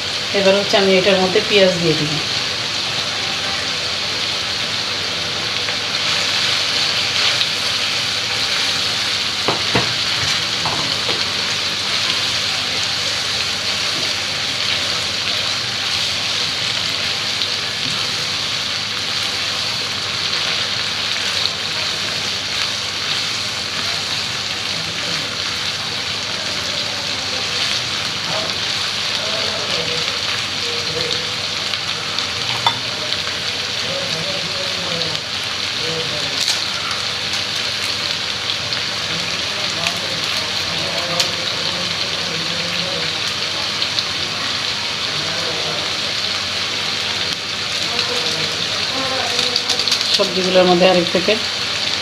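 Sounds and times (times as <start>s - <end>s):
vegetables sizzling in oil: 0.0s - 52.0s
stirring knocks: 9.3s - 11.6s.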